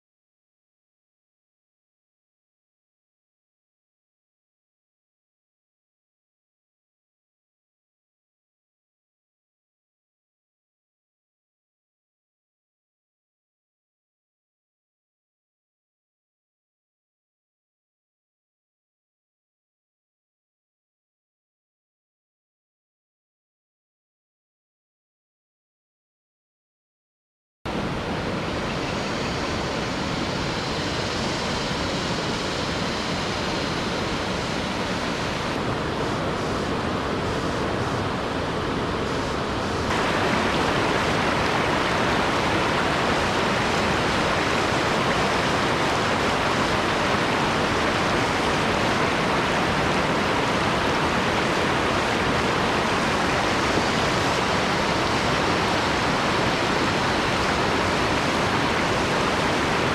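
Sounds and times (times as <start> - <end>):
waterfall roaring: 27.7 - 59.9.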